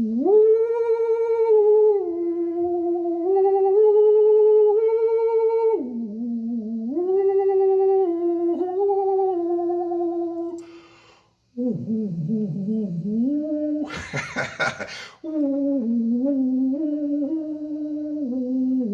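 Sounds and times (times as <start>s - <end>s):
person breathing in: 10.6s - 11.4s, 14.8s - 15.2s.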